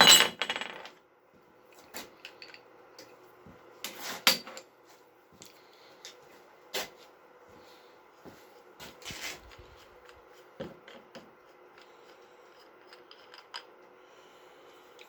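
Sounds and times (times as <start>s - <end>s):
rustling scrape: 8.9s - 10.0s.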